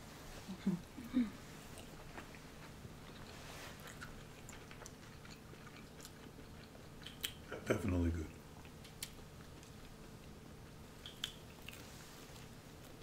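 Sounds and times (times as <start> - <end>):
chewing food: 1.7 - 13.0
wet mouth clicks: 7.0 - 7.4, 11.0 - 11.8.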